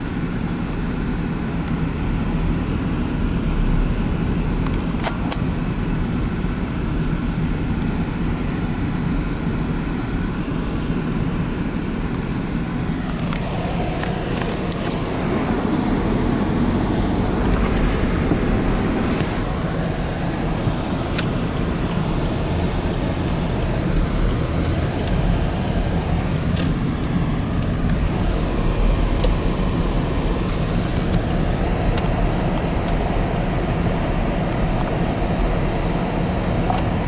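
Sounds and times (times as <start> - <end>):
low vehicle rumble: 8.2 - 37.0.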